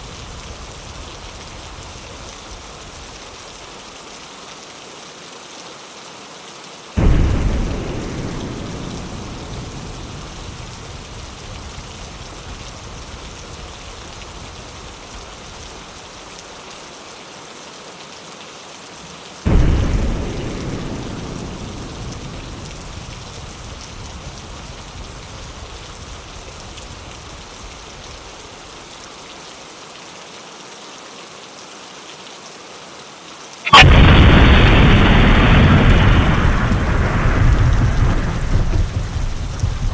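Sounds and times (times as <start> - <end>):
rain on a window: 0.0 - 39.9
thunder claps: 7.0 - 14.4, 19.5 - 25.7, 33.7 - 39.9.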